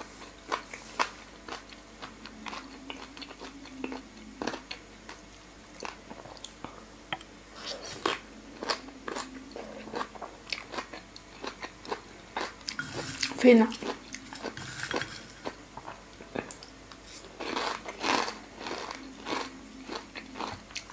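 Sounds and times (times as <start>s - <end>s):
person chewing: 0.2s - 20.9s.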